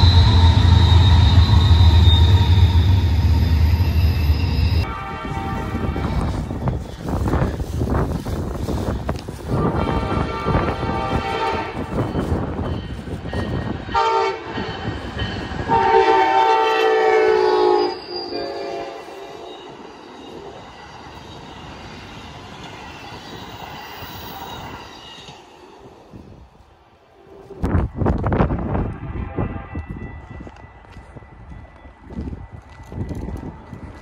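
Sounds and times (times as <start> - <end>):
train air horn: 0.0 - 6.8, 9.5 - 12.0, 13.9 - 14.8, 15.6 - 19.6, 28.7 - 30.5
train cars rumbling past: 0.0 - 34.0.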